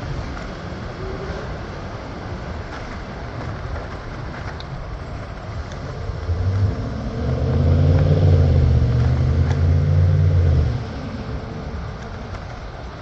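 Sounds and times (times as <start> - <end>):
motor vehicle engine rumble: 0.0 - 13.0.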